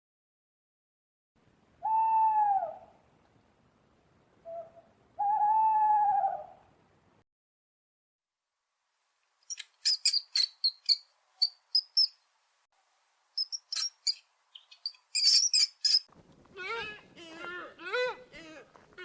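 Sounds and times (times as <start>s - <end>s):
small animal squeaking: 9.5s - 12.1s, 13.4s - 17.0s.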